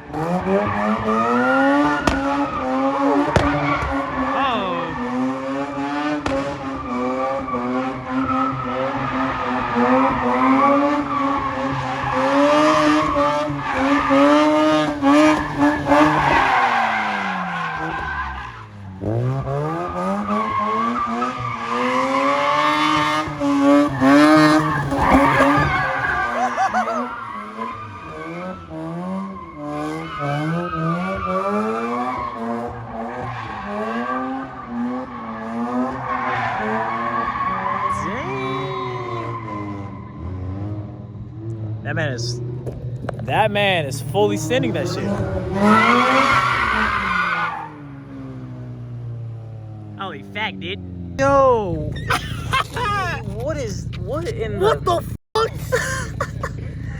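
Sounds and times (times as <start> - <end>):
car engine revving hard: 0.0 - 41.9, 44.0 - 50.0
tyres squealing: 11.7 - 18.6, 22.8 - 28.3, 43.9 - 47.7, 51.9 - 56.9.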